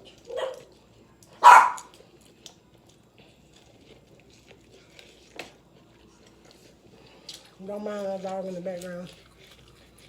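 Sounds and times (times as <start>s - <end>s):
dog chewing: 0.0s - 10.0s
dog barking: 0.3s - 0.7s, 1.4s - 1.9s.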